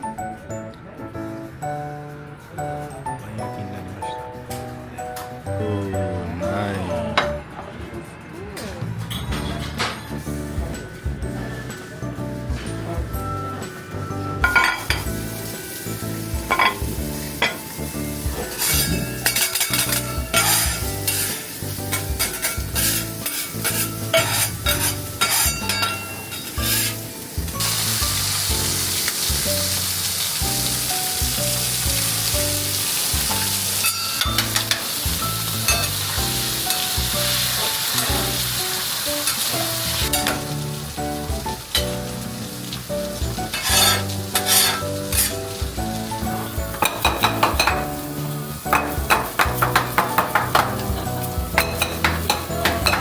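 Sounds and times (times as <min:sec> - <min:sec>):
food sizzling in a pan: 0:11.4 - 0:53.0.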